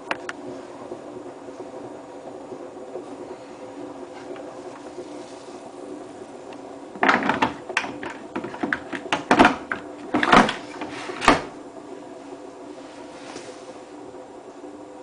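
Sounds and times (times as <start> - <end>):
washing machine hum: 0.0 - 15.0
drawer knocking shut: 7.0 - 11.5
plastic drawer clicking and rattling: 7.0 - 11.5.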